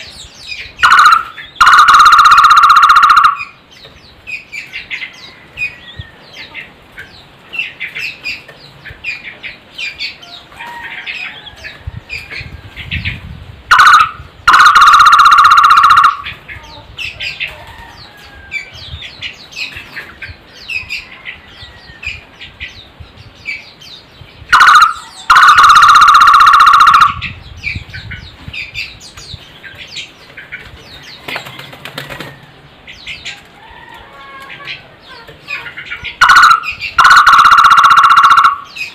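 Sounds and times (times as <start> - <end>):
small birds chirping: 0.0 - 2.1, 3.1 - 14.8, 16.0 - 25.8, 26.9 - 37.4, 38.5 - 38.9
barbet calling: 0.8 - 3.6, 13.7 - 16.5, 24.5 - 27.4, 35.1 - 38.9.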